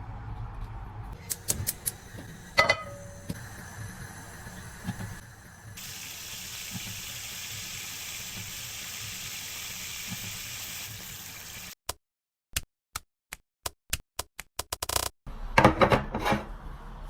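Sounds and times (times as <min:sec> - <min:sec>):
food frying in a pan: 0:01.4 - 0:11.8.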